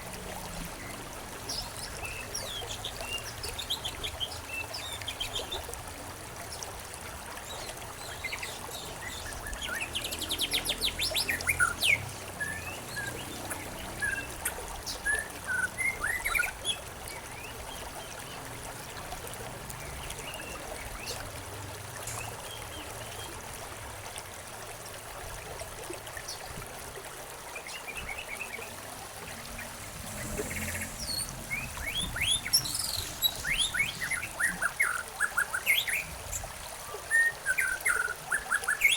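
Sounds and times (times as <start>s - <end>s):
trickle of running water: 0.0s - 38.9s
birds chirping: 7.4s - 18.5s, 27.6s - 36.4s.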